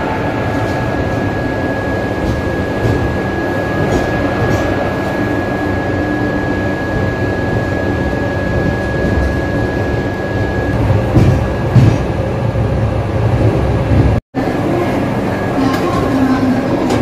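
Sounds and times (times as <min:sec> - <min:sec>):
wheels rumbling on track: 0:00.0 - 0:17.0
heavy knocks: 0:11.1 - 0:12.2.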